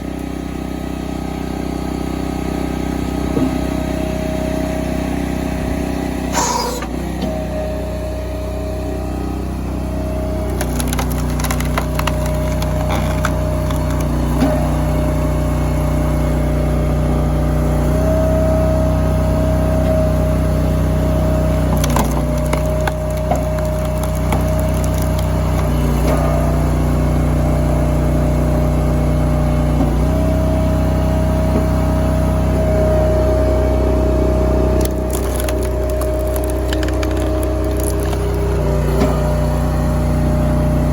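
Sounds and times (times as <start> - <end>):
hydraulic log splitter engine running: 0.0 - 40.9
logs cracking and splitting: 10.3 - 15.8, 20.4 - 26.7, 34.3 - 40.2.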